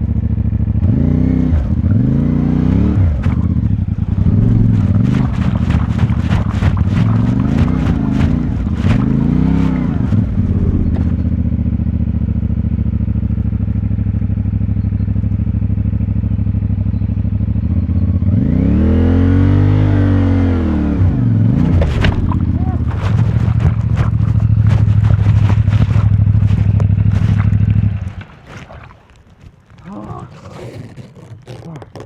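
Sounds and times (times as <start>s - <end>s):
motorcycle engine running: 0.0s - 28.4s
engine revving: 0.6s - 11.9s, 17.5s - 28.3s.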